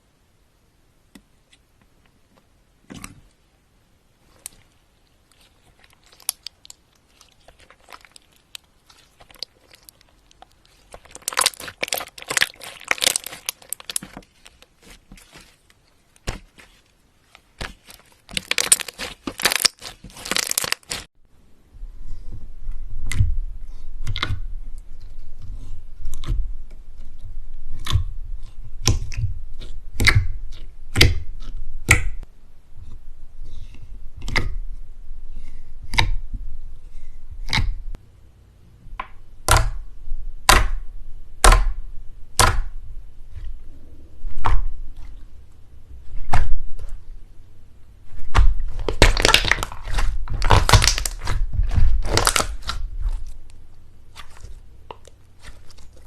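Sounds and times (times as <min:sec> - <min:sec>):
slime popping and crackling: 0:05.3 - 0:15.6, 0:17.6 - 0:21.1, 0:48.1 - 0:56.0.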